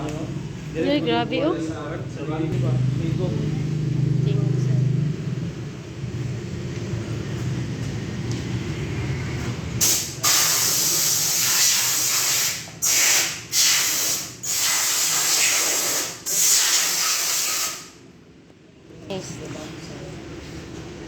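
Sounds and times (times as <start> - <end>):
pressurized jet hissing: 9.8 - 17.9.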